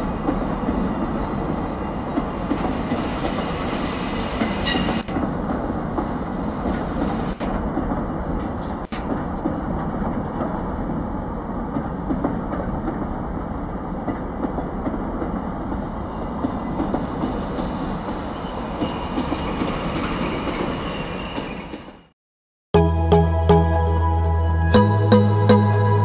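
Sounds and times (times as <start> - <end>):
freight train wheels rumbling: 0.0 - 22.1
clicks at rail joints: 4.3 - 10.9, 11.7 - 13.2, 14.0 - 18.2.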